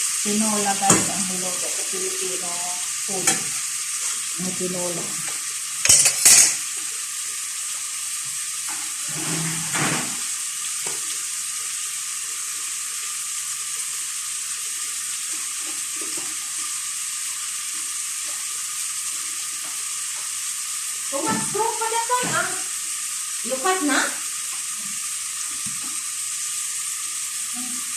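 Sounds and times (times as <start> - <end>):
food sizzling in a pot: 0.0 - 27.9
utensil clattering against pot: 5.8 - 6.6.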